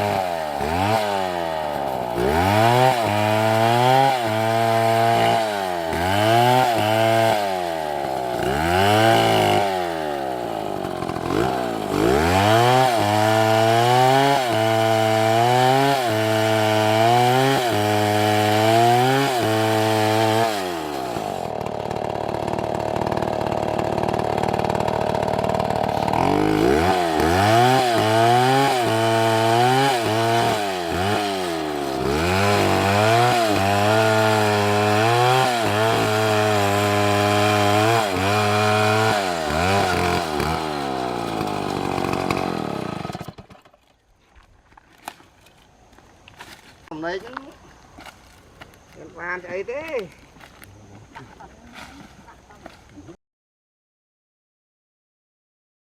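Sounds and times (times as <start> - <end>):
chainsaw revving cutting wood: 0.0 - 43.9.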